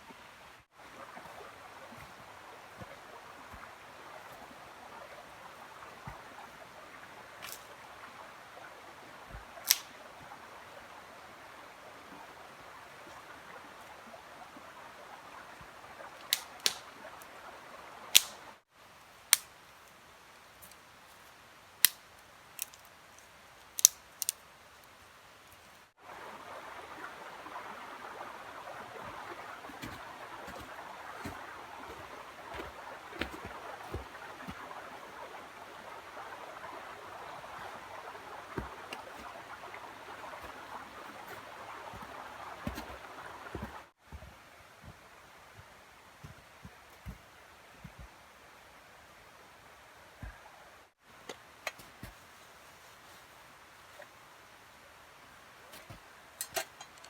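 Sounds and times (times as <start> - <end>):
sharp pops and snaps: 7.4 - 7.7, 9.3 - 10.0, 16.2 - 16.9, 18.1 - 18.4, 21.8 - 22.0, 23.6 - 24.4, 29.0 - 35.2.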